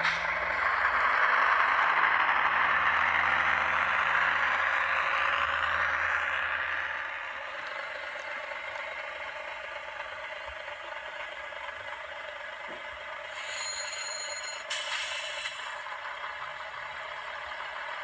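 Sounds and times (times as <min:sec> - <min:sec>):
model train whirring rattle: 0:12.4 - 0:16.4.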